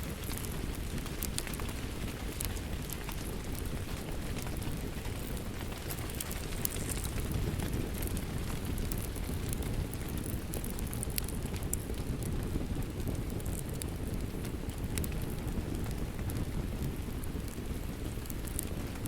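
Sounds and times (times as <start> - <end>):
fireplace crackling and popping: 0.0 - 19.0.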